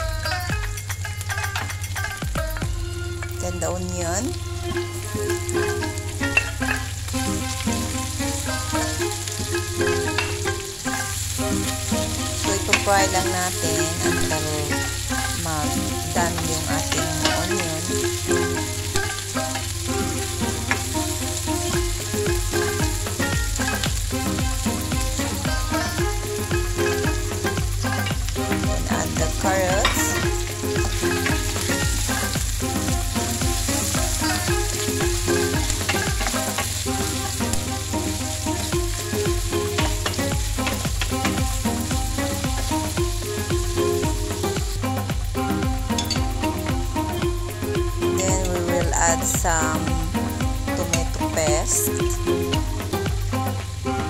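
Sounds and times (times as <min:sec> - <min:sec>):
onions sizzling in hot oil: 0:00.0 - 0:54.0
wooden spatula stirring: 0:03.1 - 0:45.0.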